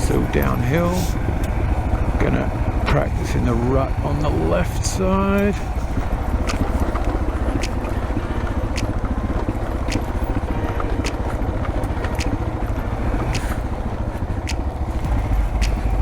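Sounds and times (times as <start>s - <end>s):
motorcycle engine rumbling: 0.0s - 16.0s
sharp clicks: 6.5s - 8.0s, 8.7s - 9.1s, 15.6s - 16.0s.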